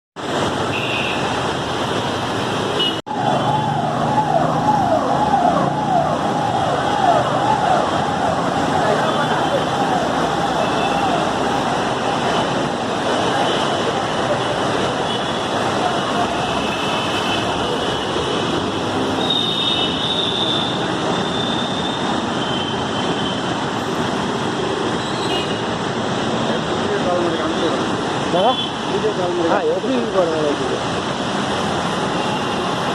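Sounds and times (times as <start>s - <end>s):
floodwater rushing roar: 0.2s - 32.9s
road traffic noise: 0.2s - 32.9s
emergency siren wailing: 3.1s - 12.8s.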